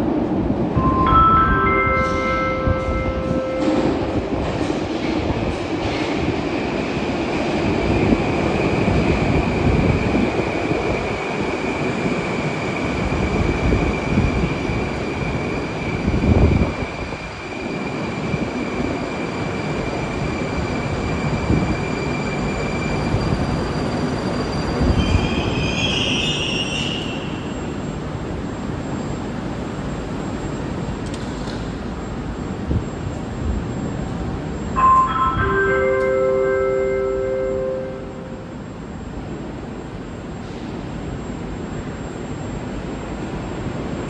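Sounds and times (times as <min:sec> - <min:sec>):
metro train rumble and whine: 0:00.0 - 0:44.0
wheels squealing on rail: 0:21.5 - 0:28.0.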